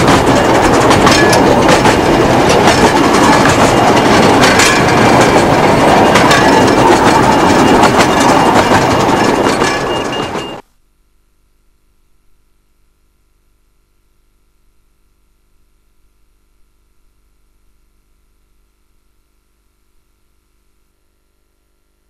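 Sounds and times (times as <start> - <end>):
train wheels clattering over rail joints: 0.0 - 10.6.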